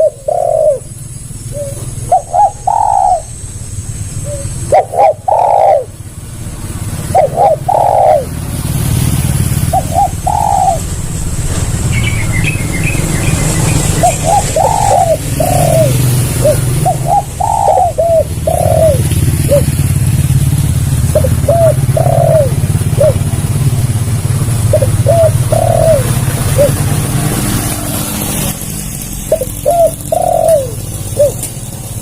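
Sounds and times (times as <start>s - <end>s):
dove cooing: 0.0s - 3.4s, 4.2s - 8.8s, 9.4s - 11.1s, 13.8s - 20.1s, 21.0s - 23.6s, 24.4s - 26.9s, 29.2s - 32.0s
small bird chirping: 0.0s - 6.0s, 7.0s - 8.3s, 9.4s - 11.2s, 11.8s - 19.9s, 21.1s - 23.3s, 29.2s - 31.6s.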